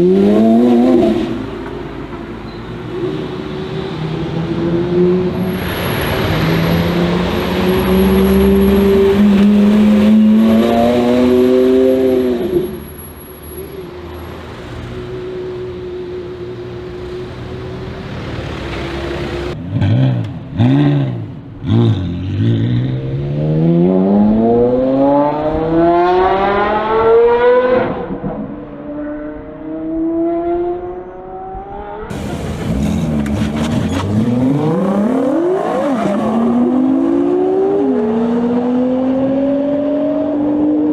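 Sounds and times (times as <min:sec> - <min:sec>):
car engine revving: 0:04.2 - 0:12.9, 0:18.1 - 0:40.9.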